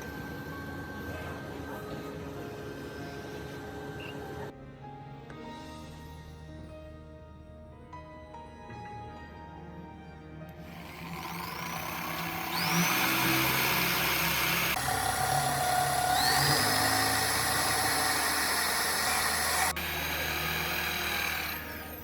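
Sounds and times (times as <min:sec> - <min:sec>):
power tool motor whining: 0:00.0 - 0:04.5, 0:10.6 - 0:22.0.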